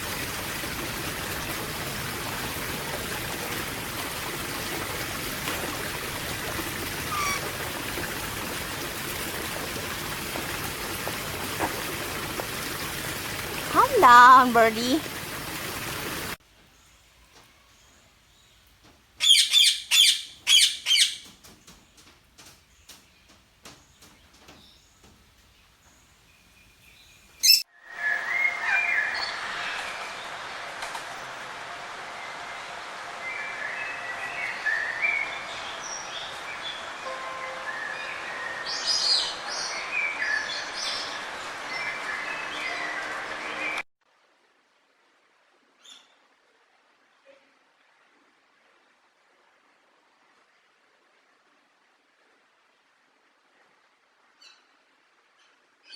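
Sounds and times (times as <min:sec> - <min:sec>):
recording hiss: 0:00.0 - 0:27.6
small bird chirping: 0:07.1 - 0:07.5, 0:26.9 - 0:27.6
whistled bird song: 0:07.1 - 0:07.5, 0:27.4 - 0:29.4
songbirds chirping: 0:16.6 - 0:27.6.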